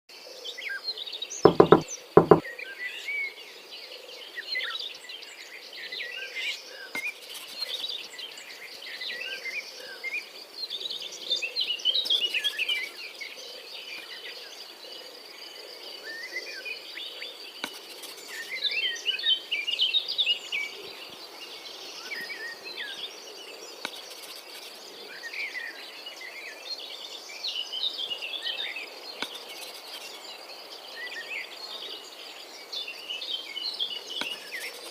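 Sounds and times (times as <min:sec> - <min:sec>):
birds chirping and twittering: 0:00.5 - 0:34.9
sharp knocks: 0:01.5 - 0:02.4.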